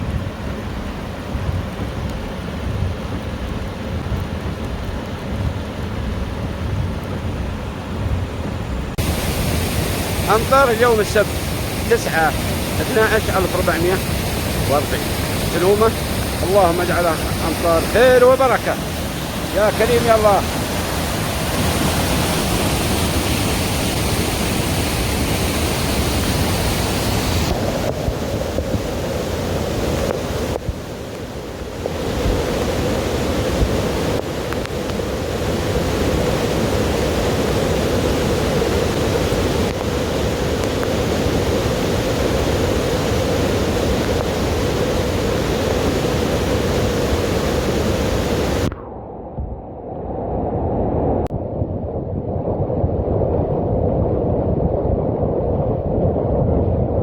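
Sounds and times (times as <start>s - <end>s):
heavy rain: 0.0s - 48.7s
low rumble: 48.6s - 57.0s.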